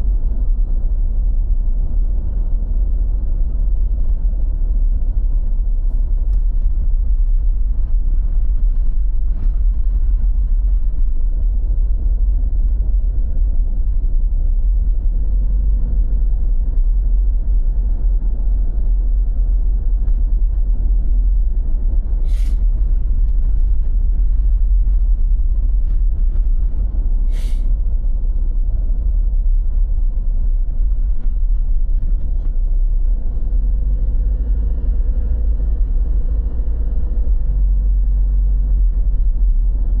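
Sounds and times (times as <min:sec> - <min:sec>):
deep rumble: 0:00.0 - 0:40.0
short hissing bursts: 0:22.2 - 0:22.6, 0:27.3 - 0:27.7.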